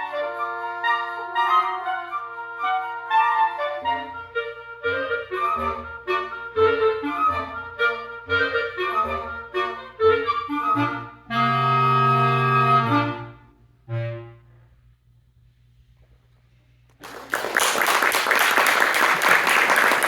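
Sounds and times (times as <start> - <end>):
woodwind quintet playing chords: 0.0 - 15.1.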